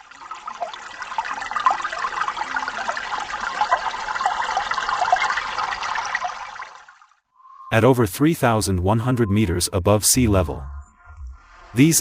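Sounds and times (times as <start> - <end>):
stream water babbling: 0.0 - 7.2.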